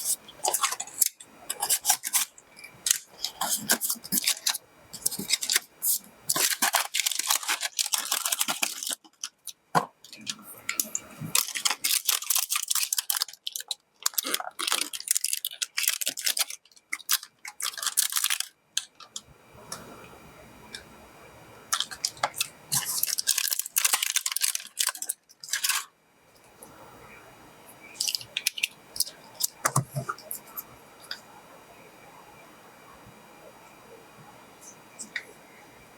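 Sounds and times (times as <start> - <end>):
plastic packaging rustling: 0.0 - 19.2, 21.7 - 25.9, 27.8 - 31.2
faint hiss: 25.9 - 35.9.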